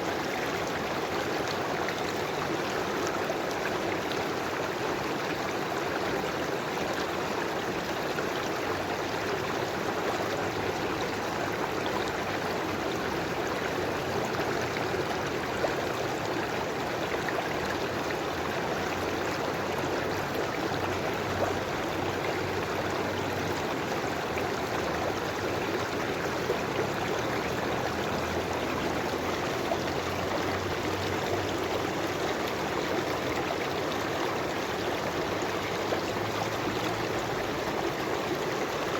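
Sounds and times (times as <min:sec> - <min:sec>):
river flowing: 0:00.0 - 0:38.9
small water splashes: 0:11.1 - 0:38.9.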